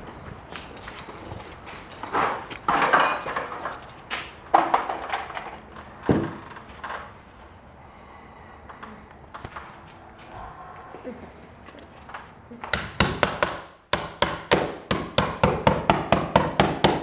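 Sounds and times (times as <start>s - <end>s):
hard objects knocking and clattering: 0.0s - 7.1s.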